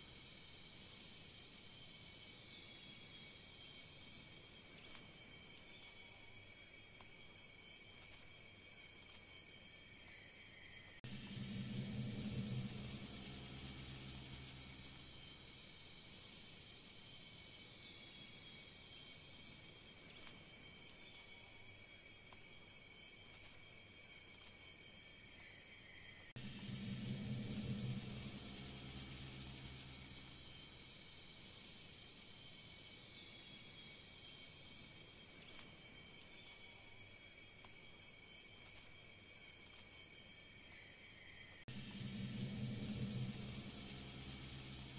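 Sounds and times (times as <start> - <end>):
insect chorus: 0.0 - 44.9
low hum: 11.0 - 15.8, 26.4 - 31.0, 41.7 - 44.9.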